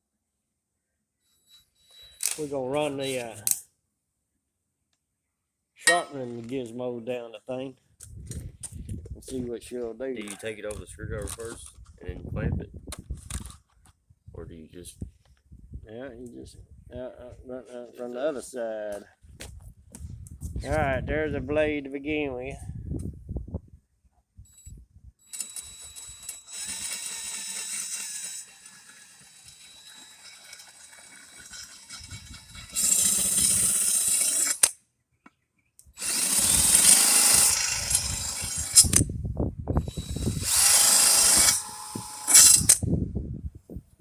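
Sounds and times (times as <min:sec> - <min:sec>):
power drill grinding blade: 0:01.5 - 0:03.6, 0:24.6 - 0:34.8, 0:36.0 - 0:39.0, 0:39.8 - 0:42.8.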